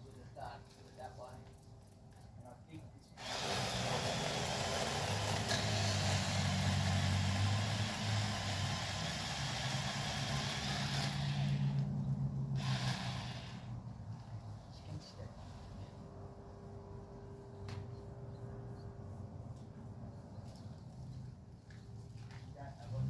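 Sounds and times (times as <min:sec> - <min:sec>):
chainsaw chain cutting wood: 0:03.2 - 0:11.9, 0:12.6 - 0:13.7
chainsaw motor: 0:03.2 - 0:11.9, 0:12.5 - 0:13.8.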